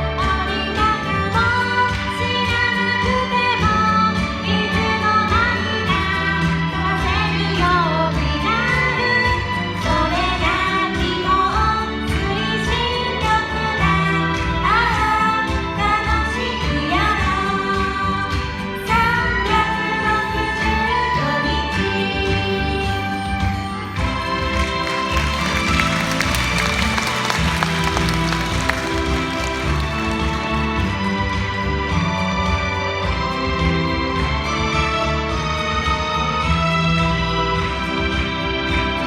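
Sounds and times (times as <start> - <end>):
women singing pop ballad: 0.1 - 23.9
instrumental accompaniment: 24.0 - 39.0.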